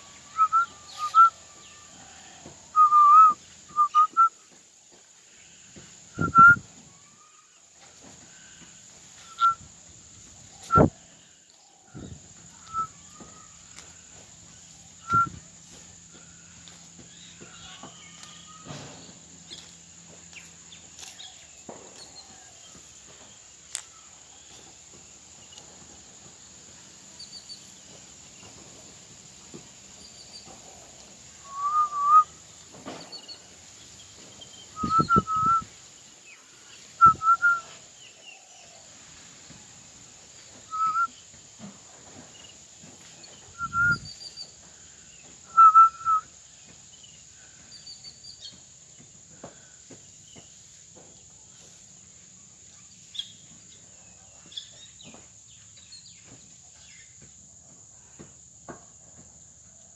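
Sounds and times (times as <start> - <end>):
faint chirps: 0.0 - 25.8, 29.4 - 38.9, 40.4 - 51.8
steady high hiss: 0.0 - 48.9
parrot whistling: 2.8 - 4.3, 31.5 - 32.2, 40.7 - 41.1.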